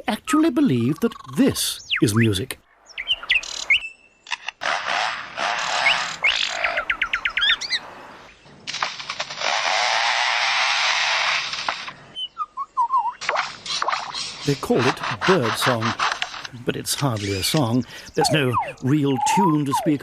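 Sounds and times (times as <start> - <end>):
wild birds singing and chirping: 0.0 - 4.4, 5.5 - 8.7, 11.8 - 20.0
bird call falling notes: 17.0 - 20.0.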